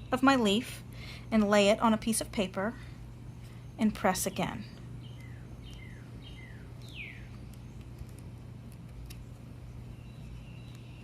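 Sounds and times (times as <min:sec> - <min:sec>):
low steady hum: 0:00.0 - 0:11.0
bird chirping: 0:03.2 - 0:08.2, 0:09.2 - 0:11.0.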